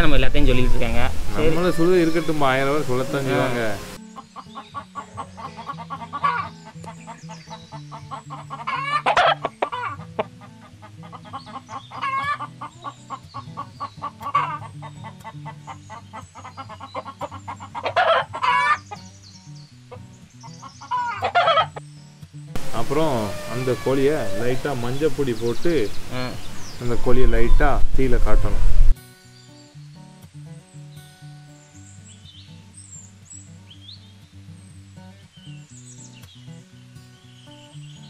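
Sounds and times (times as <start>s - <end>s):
chickens clucking: 0.0s - 19.1s, 19.9s - 21.8s, 22.6s - 29.0s
music with slow bass line: 0.0s - 26.8s, 28.8s - 38.0s.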